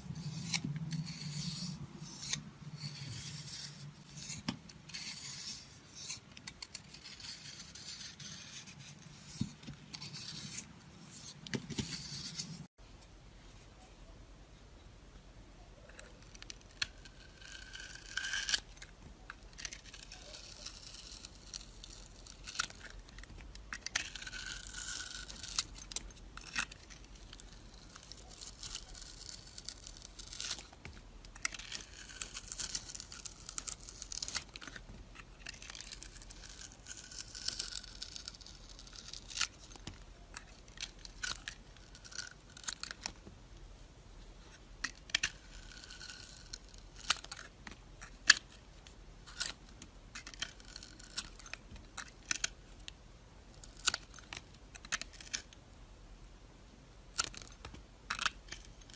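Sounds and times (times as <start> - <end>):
knife scraping soap: 0.1 - 12.7, 15.9 - 43.0, 44.9 - 48.6, 49.3 - 52.6
crisp crackles and clicks: 15.7 - 55.7, 57.1 - 58.9.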